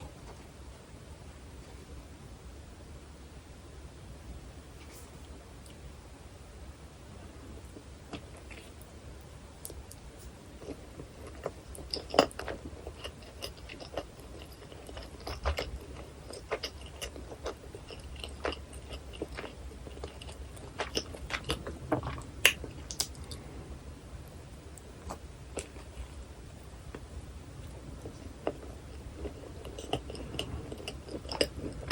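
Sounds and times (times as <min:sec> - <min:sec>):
biting and chewing food: 0:10.6 - 0:23.4, 0:26.8 - 0:31.9.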